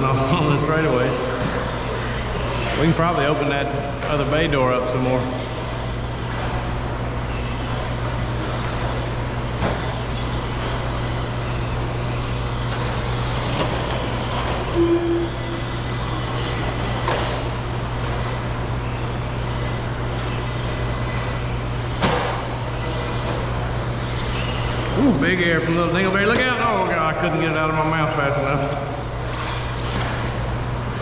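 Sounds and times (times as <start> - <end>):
steady low hum: 0.0 - 31.0
electric rc trucks running: 0.3 - 26.6, 27.9 - 31.0
short tone: 14.8 - 15.6.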